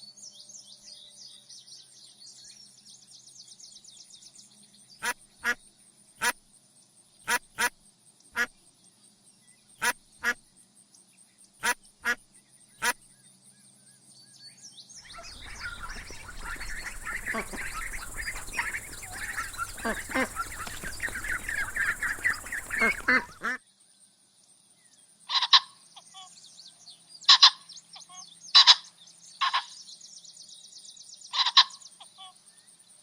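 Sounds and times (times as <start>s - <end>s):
chatter of many birds: 11.6s - 23.8s, 25.2s - 33.0s
loud bird calls: 15.0s - 23.6s, 27.2s - 29.9s.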